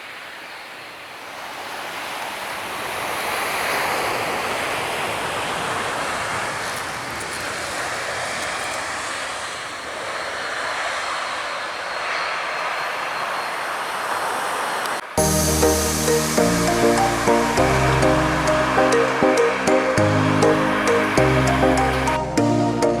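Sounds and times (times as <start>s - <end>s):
surf washing: 0.0s - 23.0s
jet airliner passing overhead: 3.0s - 23.0s.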